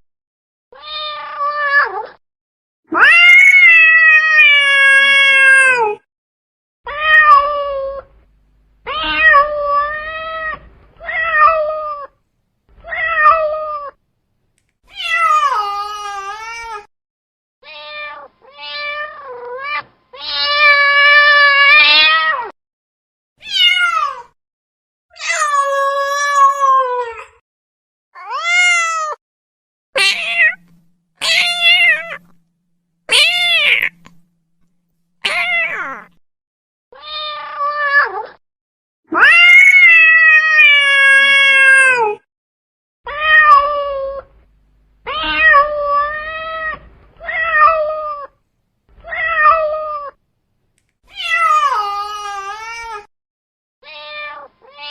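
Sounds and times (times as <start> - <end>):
cat meowing: 0.8 - 2.2, 2.9 - 6.0, 6.9 - 8.2, 8.8 - 12.2, 12.8 - 14.0, 14.9 - 16.9, 17.6 - 22.5, 23.4 - 24.3, 28.2 - 29.2, 30.0 - 32.4, 33.1 - 34.3, 35.2 - 36.2, 37.0 - 38.4, 39.1 - 42.2, 43.1 - 44.4, 45.0 - 48.4, 49.0 - 50.2, 51.1 - 53.1, 53.8 - 54.9.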